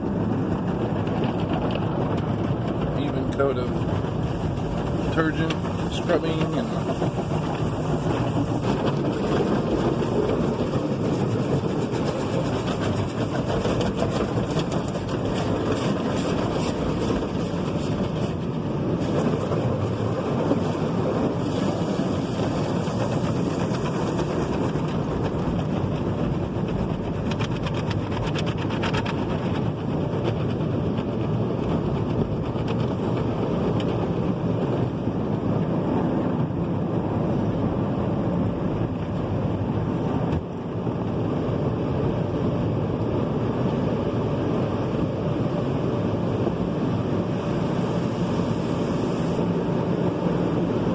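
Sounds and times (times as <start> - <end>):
water spraying against car: 0.0 - 50.9
car wash brushes scrubbing: 0.8 - 33.8.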